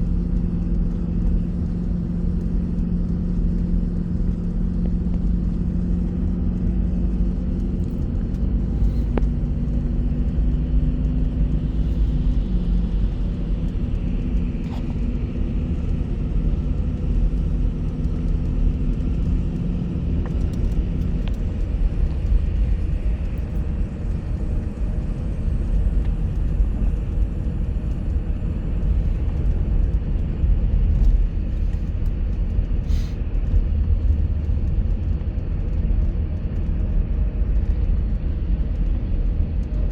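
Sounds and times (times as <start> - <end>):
low road rumble: 0.0 - 39.9
bus engine humming: 32.8 - 33.2.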